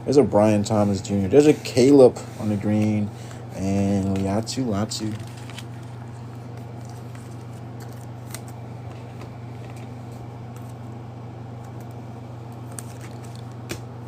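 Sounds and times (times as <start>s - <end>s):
steady low hum: 0.0s - 14.0s
trading cards clicking and rustling: 2.5s - 10.8s, 11.6s - 13.9s.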